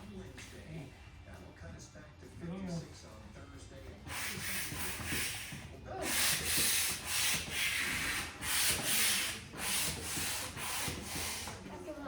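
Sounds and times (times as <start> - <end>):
hand air pump hissing: 4.0 - 11.7.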